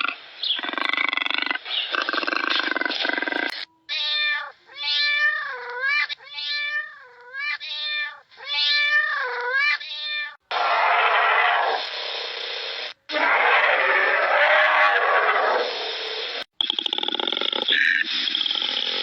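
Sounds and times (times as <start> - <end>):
cat meowing: 3.8 - 11.6.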